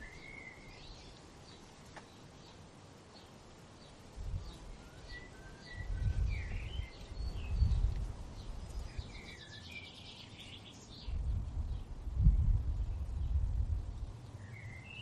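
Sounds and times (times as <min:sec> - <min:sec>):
birds chirping and whistling: 0:04.8 - 0:11.2, 0:14.4 - 0:15.0
low rumbling noise: 0:11.0 - 0:14.4.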